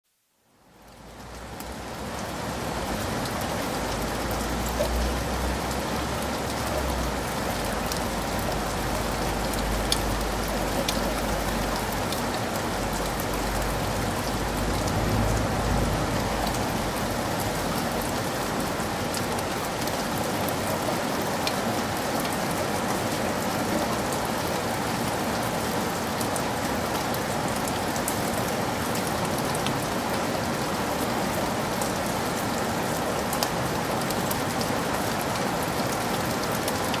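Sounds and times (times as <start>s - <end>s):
heavy rain falling: 0.2s - 37.0s
raindrops ticking close by: 0.6s - 37.0s.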